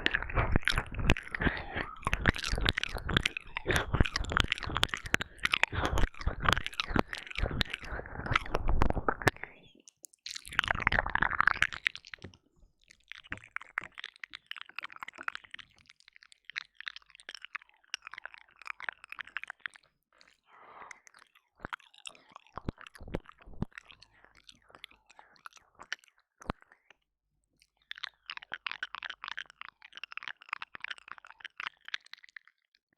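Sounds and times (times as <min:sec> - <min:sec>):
mouth clicks: 0:00.0 - 0:12.4
wet mouth smacking and licking: 0:00.0 - 0:26.9, 0:27.6 - 0:32.7.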